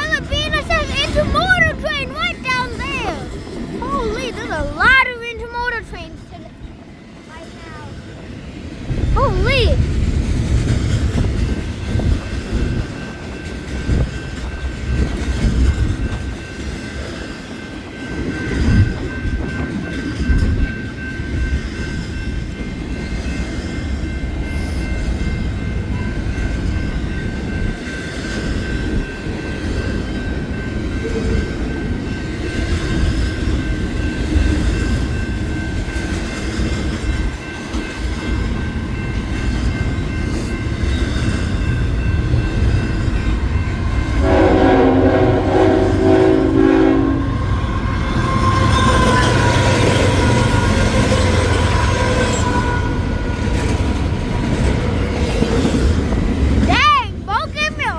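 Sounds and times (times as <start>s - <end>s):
freight train rumbling on rails: 0.0s - 57.9s.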